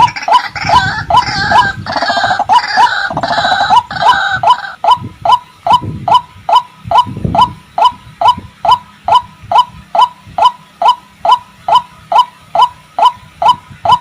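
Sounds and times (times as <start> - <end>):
waterhen calling: 0.0 - 14.0.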